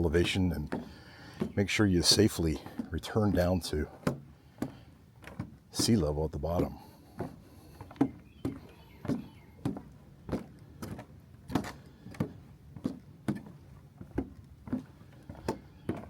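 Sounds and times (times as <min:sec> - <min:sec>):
trekking pole tapping wood: 0:00.0 - 0:06.0
footsteps on wooden boards: 0:00.0 - 0:16.0.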